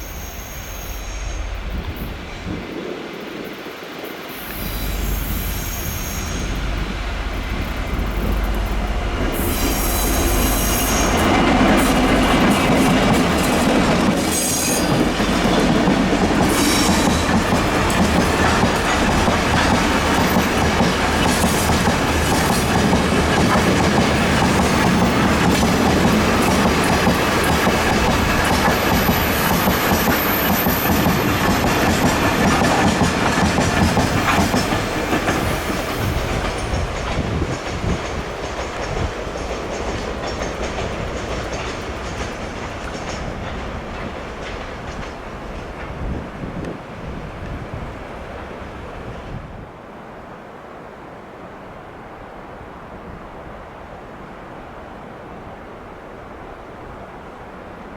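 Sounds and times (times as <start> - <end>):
high wheel squeals: 0.0 - 2.5, 4.3 - 7.0, 9.4 - 11.4
diesel locomotive engine hum: 0.0 - 49.7
train wagons clickety-clack: 4.4 - 46.8.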